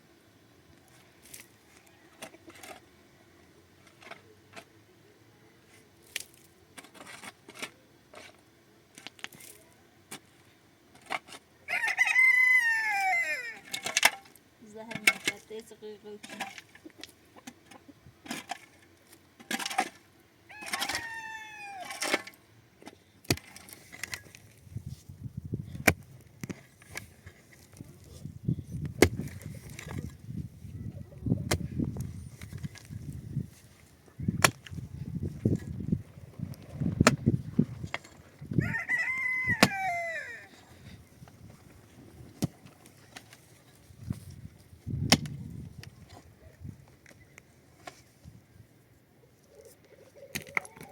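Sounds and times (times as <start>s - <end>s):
rooster crowing: 11.7s - 13.7s, 20.5s - 22.0s, 38.6s - 40.6s.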